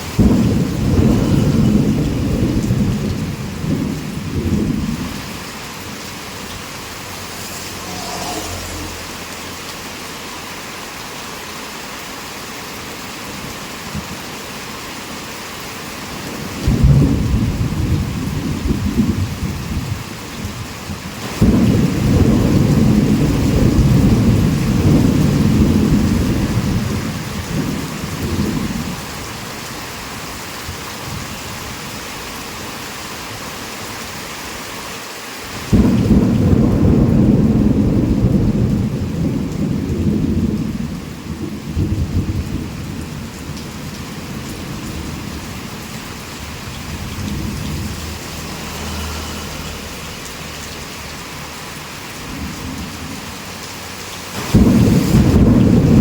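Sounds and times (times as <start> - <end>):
thunder rumbling: 0.0 - 9.3, 16.1 - 29.5, 35.6 - 50.5, 54.3 - 56.0
heavy rain falling: 0.0 - 56.0.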